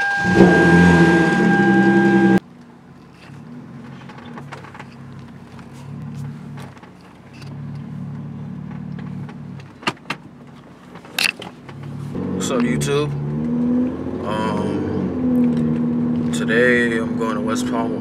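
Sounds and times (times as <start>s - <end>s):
engine running with high whine: 0.0s - 18.0s
engine idling quietly: 1.8s - 13.3s.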